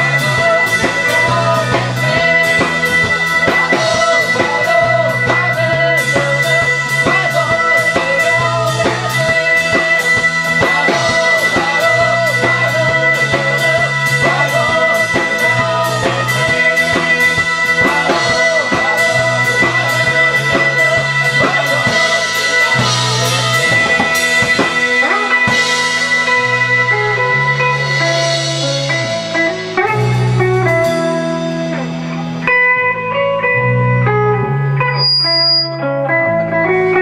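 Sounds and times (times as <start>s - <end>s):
drum kit beat: 0.0s - 32.6s
live band playing fusion: 0.0s - 37.0s.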